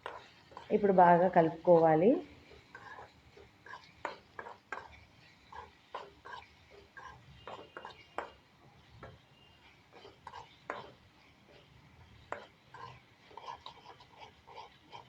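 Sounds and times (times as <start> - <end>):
spoon knocking against pan: 0.0 - 0.7, 3.6 - 5.0, 7.0 - 8.4, 9.0 - 9.2, 10.0 - 11.0
spoon scraping in a pan: 0.0 - 15.0.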